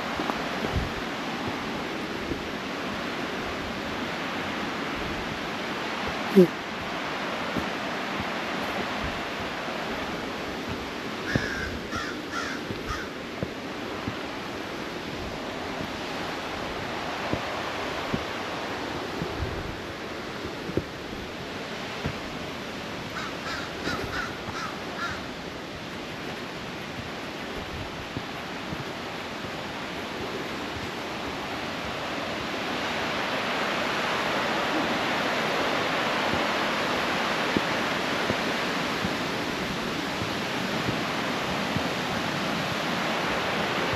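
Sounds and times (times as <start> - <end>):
creek water rushing over rocks: 0.0 - 43.9
bird harsh calls: 11.2 - 13.1.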